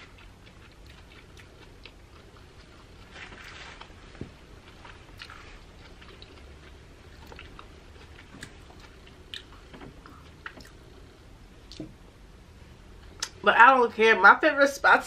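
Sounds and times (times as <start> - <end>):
chewing mouth sounds: 0.0 - 3.6, 4.6 - 11.0.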